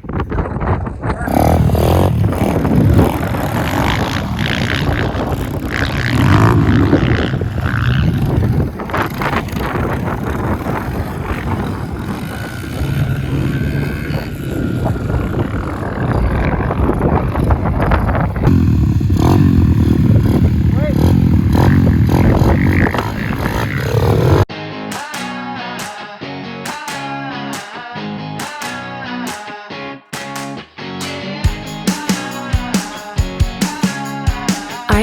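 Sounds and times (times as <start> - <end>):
pit bike engine revving: 1.2 - 24.5.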